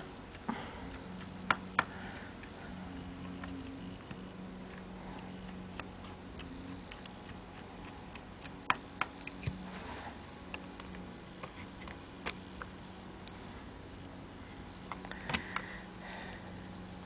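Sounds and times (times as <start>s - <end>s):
faint steady hum: 0.0s - 17.0s
metal keywork clicks and taps: 8.1s - 9.6s.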